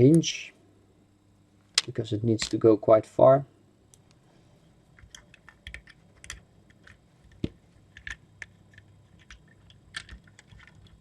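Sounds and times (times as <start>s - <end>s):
plastic toy bricks clicking: 5.0s - 11.0s.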